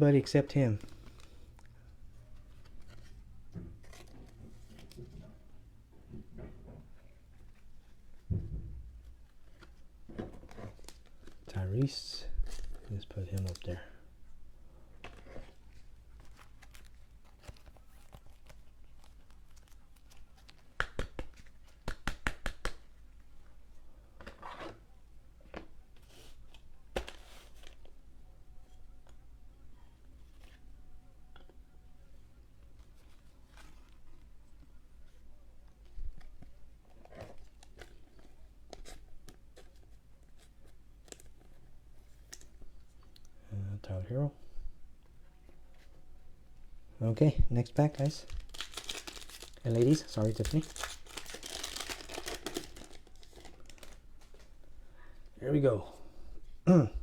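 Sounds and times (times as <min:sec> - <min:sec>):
plastic sleeves crinkling: 0:09.2 - 0:13.9, 0:15.0 - 0:22.0, 0:47.6 - 0:54.7
cards clicking and rustling: 0:16.2 - 0:22.9, 0:47.8 - 0:54.5
cards tapping and clicking: 0:20.5 - 0:22.9.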